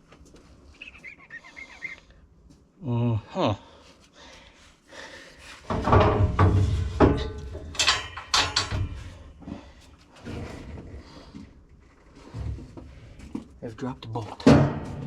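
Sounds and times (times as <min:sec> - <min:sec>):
metal clanking and scraping: 0:05.6 - 0:11.0, 0:14.4 - 0:15.0.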